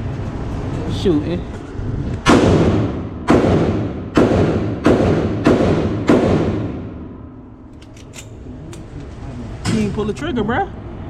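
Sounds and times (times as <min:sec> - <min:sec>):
gunshots echoing indoors: 0:02.2 - 0:07.6.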